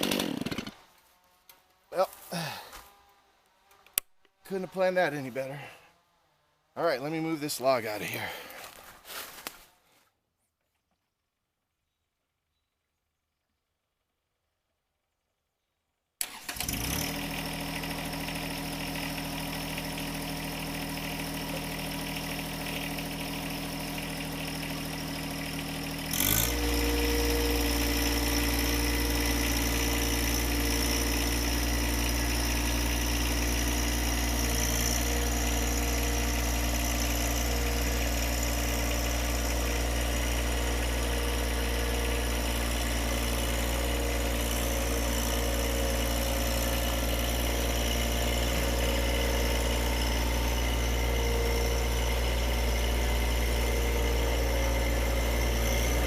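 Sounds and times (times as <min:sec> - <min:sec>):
tractor engine running: 0:16.2 - 0:56.0.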